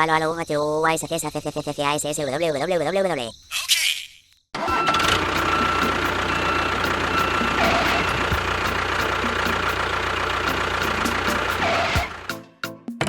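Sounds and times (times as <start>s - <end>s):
short beeps: 4.6s - 8.3s
vehicle engine humming: 4.6s - 12.4s.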